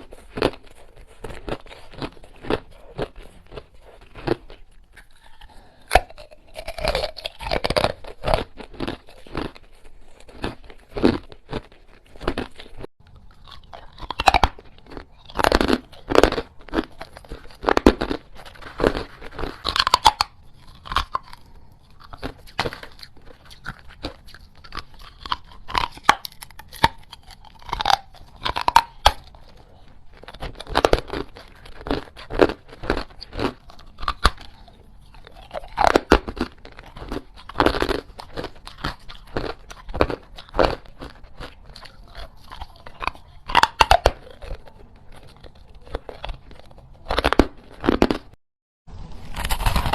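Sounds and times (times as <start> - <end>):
chewing ice crunches: 0.0 - 48.4, 49.3 - 49.9.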